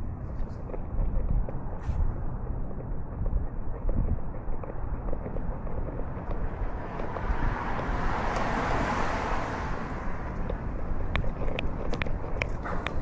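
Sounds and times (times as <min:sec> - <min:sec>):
wind: 0:00.0 - 0:13.0
vehicle passing by: 0:05.8 - 0:13.0.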